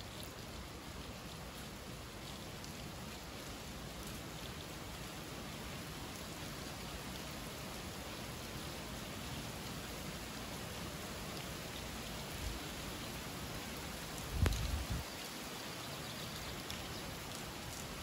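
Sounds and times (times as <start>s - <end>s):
raindrop ticks: 0.0s - 5.1s, 14.0s - 18.0s
rain hissing: 0.0s - 18.0s.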